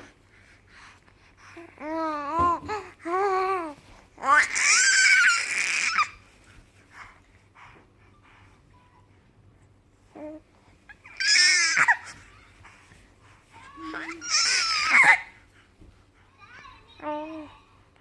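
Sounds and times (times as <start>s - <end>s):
baby cooing: 1.8s - 6.2s, 11.0s - 12.3s, 13.7s - 15.4s
baby squealing: 4.3s - 6.1s, 11.0s - 12.1s, 13.9s - 15.3s.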